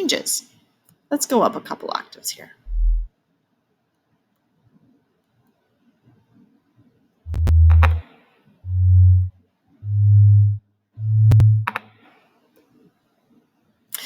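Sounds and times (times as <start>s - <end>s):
low sine-wave synthesizer notes: 2.7s - 3.1s, 7.3s - 8.0s, 8.6s - 11.7s
sharp clicks: 7.3s - 8.0s.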